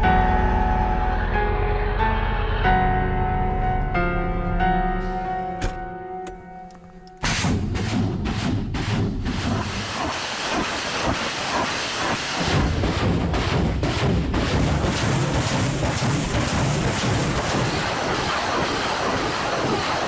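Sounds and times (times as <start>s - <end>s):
rockets launching roar: 7.2s - 20.0s
sharp rocket bursts: 8.8s - 20.0s.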